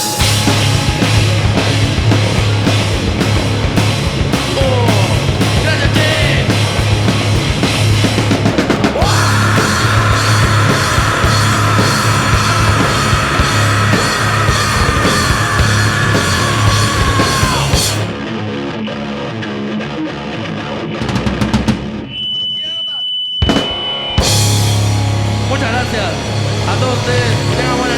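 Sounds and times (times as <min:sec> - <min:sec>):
lingering ringing: 0:00.0 - 0:03.6
drum hits: 0:00.0 - 0:18.2, 0:23.4 - 0:27.9
rock band playing live: 0:00.0 - 0:22.1, 0:23.4 - 0:27.9.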